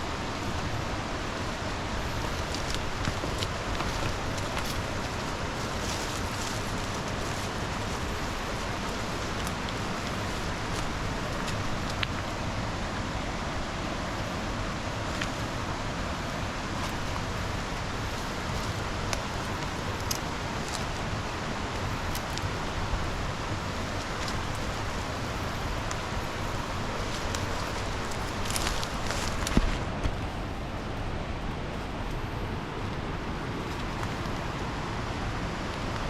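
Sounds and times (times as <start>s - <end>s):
flowing river water: 0.0s - 36.0s
footsteps on ground: 1.6s - 12.4s, 14.8s - 30.4s.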